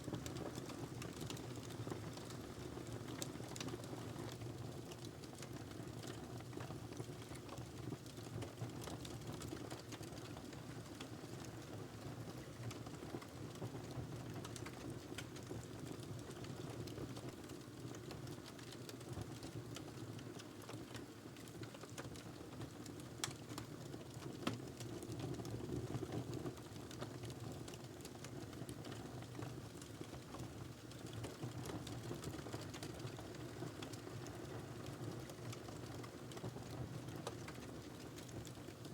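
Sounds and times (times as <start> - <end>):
fire crackles and pops: 0.1 - 38.9.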